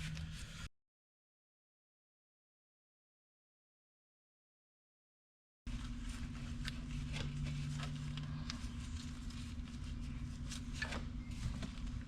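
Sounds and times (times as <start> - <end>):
steady low hum: 0.0 - 0.7, 5.7 - 12.0.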